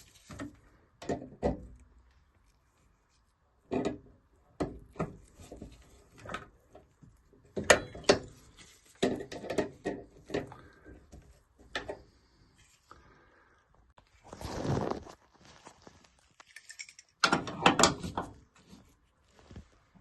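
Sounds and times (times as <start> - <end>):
tools knocking and clicking on metal: 7.5 - 8.4.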